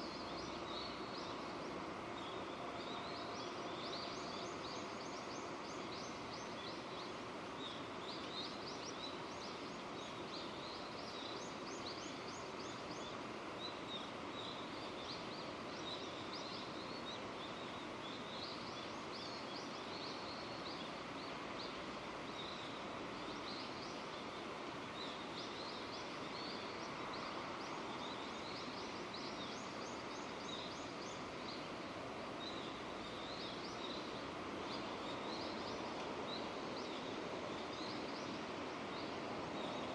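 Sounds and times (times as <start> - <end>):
small birds chirping: 0.0 - 39.9
steady rain falling: 0.0 - 39.9.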